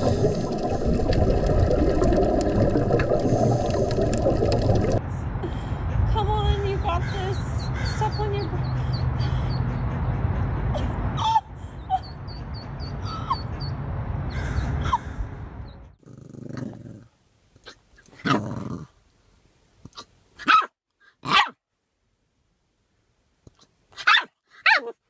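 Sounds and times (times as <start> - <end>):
dog barking: 20.4 - 20.7, 21.3 - 21.6, 24.0 - 25.0.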